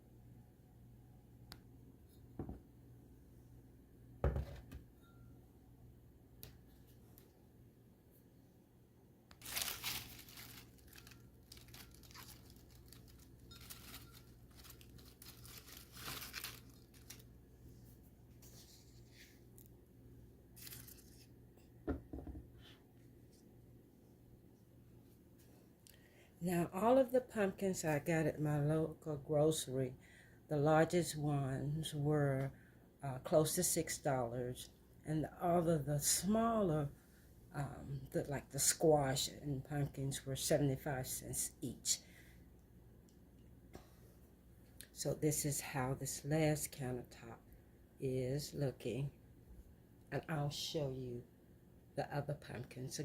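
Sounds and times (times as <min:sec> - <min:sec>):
wrapping crinkling and tearing: 0:09.4 - 0:17.3, 0:20.6 - 0:21.3.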